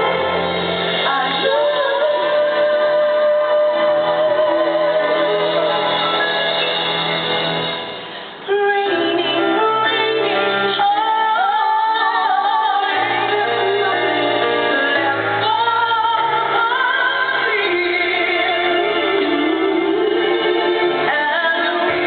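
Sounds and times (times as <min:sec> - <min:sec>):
woman singing: 0:00.0 - 0:06.1, 0:08.4 - 0:22.0
band accompaniment: 0:00.0 - 0:11.5.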